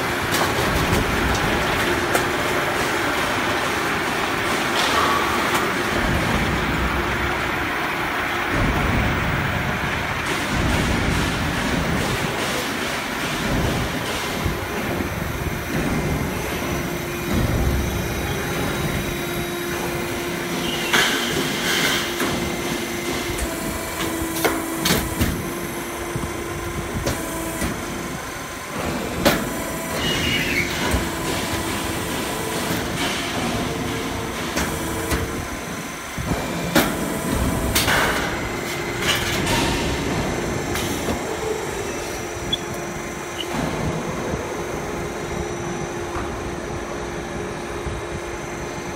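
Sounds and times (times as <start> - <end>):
machinery hum and whine: 0.0 - 48.9
metal clanks and bangs: 36.2 - 41.9.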